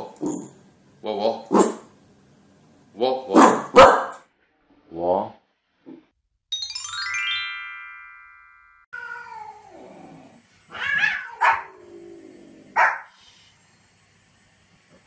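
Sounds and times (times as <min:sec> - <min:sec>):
small dog barking: 0:03.3 - 0:04.2, 0:10.8 - 0:11.8, 0:12.7 - 0:13.1
bright chiming sting: 0:06.5 - 0:08.9
cat meowing: 0:08.9 - 0:09.8, 0:10.7 - 0:11.7.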